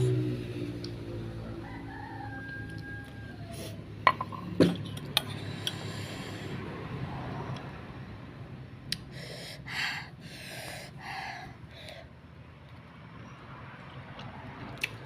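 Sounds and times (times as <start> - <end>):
rooster crowing: 1.2 - 3.9.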